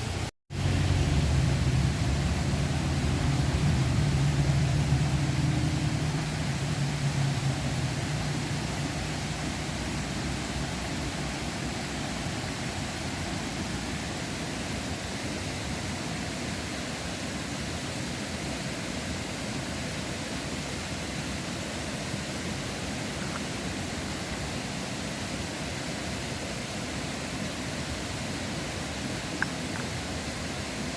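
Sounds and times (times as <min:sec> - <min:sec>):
river rushing: 0:00.0 - 0:30.9.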